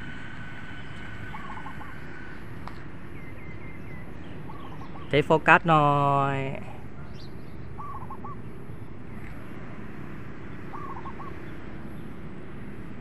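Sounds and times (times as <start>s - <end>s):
outdoor background noise: 0.0s - 13.0s
bird calling clear notes: 3.2s - 8.5s, 10.7s - 11.4s.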